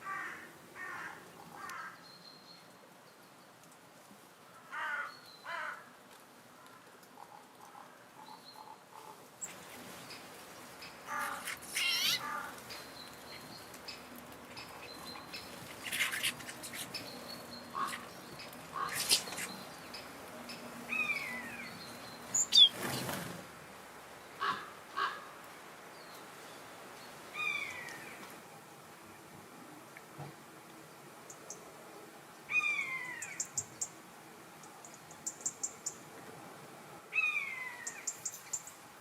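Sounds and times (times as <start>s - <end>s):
wild birds calling: 6.7s - 23.2s, 24.4s - 25.4s, 27.3s - 28.2s, 32.5s - 33.9s, 37.1s - 38.7s.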